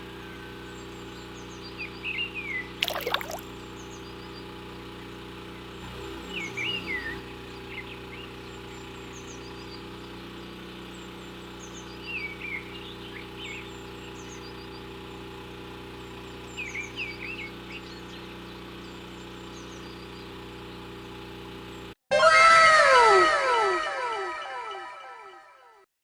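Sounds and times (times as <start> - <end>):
birds chirping: 0.7 - 4.0.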